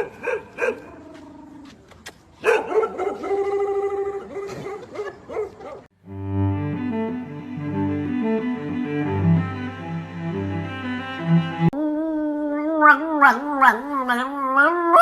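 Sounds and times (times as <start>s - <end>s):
dog barking: 0.0s - 0.9s, 2.4s - 5.9s, 12.8s - 14.2s
low bowed-string music: 6.0s - 11.8s.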